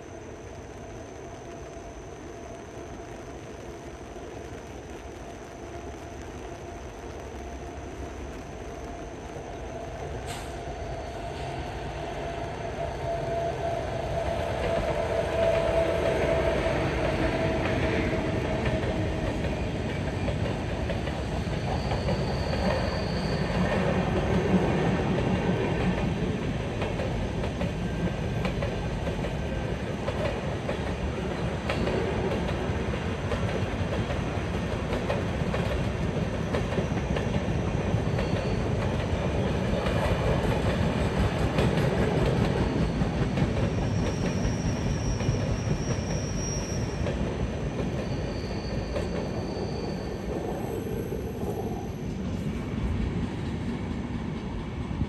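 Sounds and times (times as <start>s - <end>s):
thin whine: 0.0s - 24.5s
train wheels rumbling on rails: 0.0s - 55.0s.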